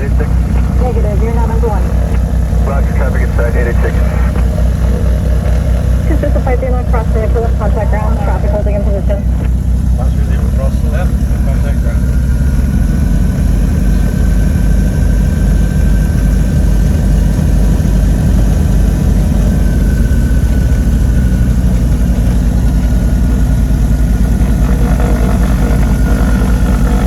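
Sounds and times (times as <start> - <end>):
propeller aircraft engines droning: 0.0 - 27.0.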